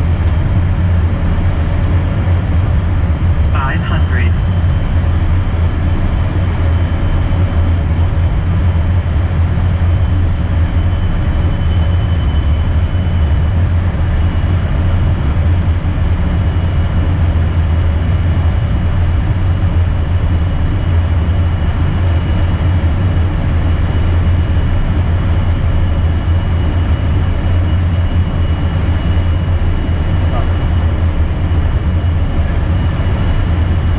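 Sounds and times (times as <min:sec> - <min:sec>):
jet engine and airflow rumble: 0:00.0 - 0:33.9.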